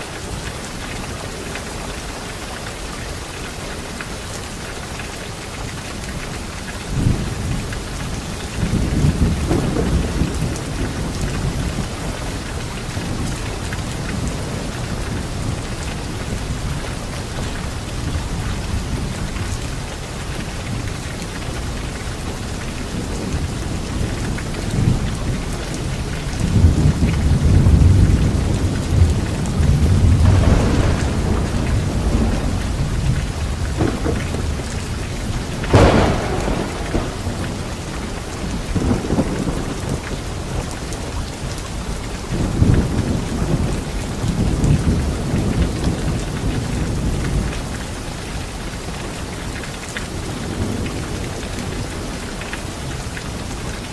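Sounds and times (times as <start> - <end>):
steady rain falling: 0.0 - 53.9
thunder rumbling: 6.9 - 19.6, 22.8 - 47.8.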